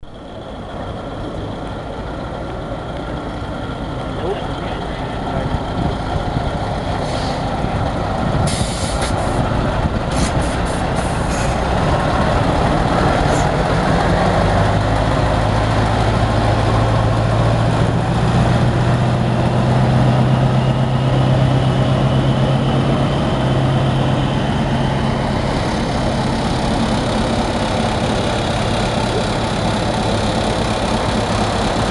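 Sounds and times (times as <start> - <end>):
diesel lorry engine running: 0.0 - 31.9
short air hisses: 7.0 - 7.5, 8.5 - 9.4, 10.1 - 11.6.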